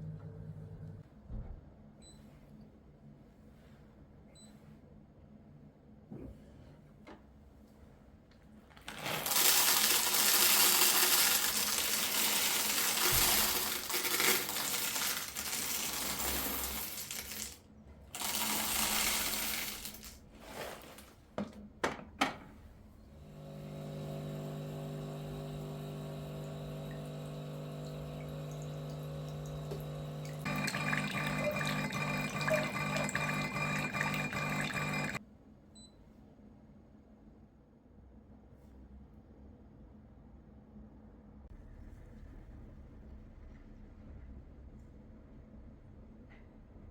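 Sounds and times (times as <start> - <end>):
machine hum pulsing: 23.0 - 35.2.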